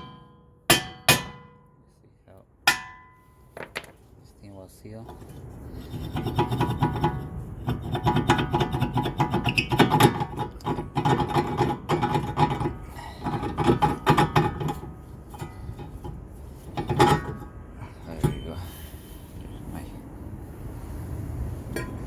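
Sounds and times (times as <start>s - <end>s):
faint metallic ring: 2.7s - 3.6s
metal scraping on brake parts: 5.0s - 19.3s.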